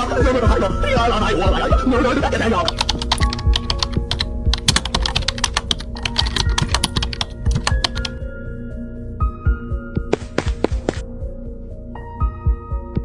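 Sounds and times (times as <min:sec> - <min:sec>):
background music with held notes: 0:00.0 - 0:13.0
rapid irregular clicks: 0:02.6 - 0:08.2.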